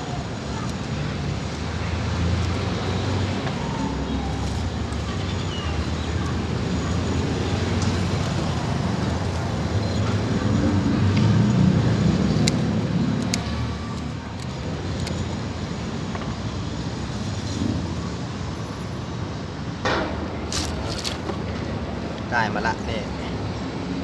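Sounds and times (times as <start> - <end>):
passing vehicle engine rumble: 0.0 - 24.0
sharp clicks: 11.1 - 15.4.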